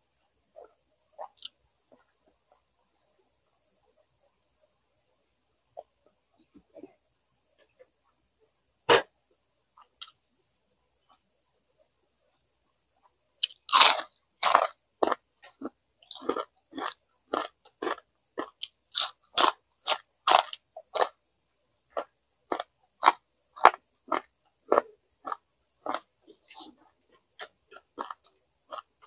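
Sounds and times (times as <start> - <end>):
chewing crunchy food: 13.4 - 21.2, 21.9 - 29.0.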